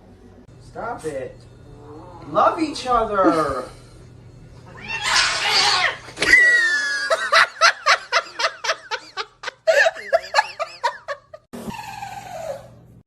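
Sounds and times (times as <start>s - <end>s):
person laughing hard: 6.3s - 11.5s.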